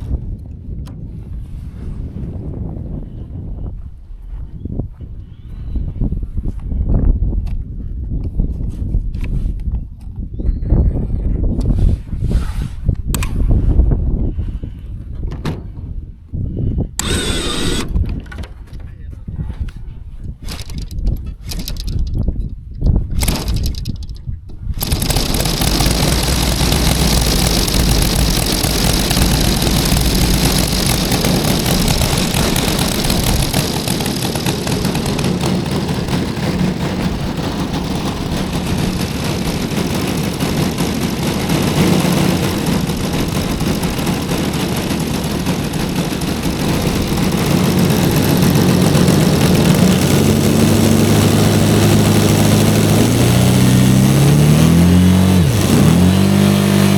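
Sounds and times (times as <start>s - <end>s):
model aircraft engine running: 17.0s - 18.0s, 23.2s - 24.1s, 24.8s - 56.9s.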